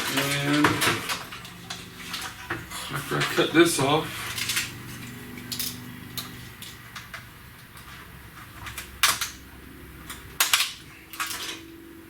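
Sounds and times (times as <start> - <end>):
faint steady hum: 0.0 - 12.0
metal parts clicking and tapping: 4.3 - 11.8.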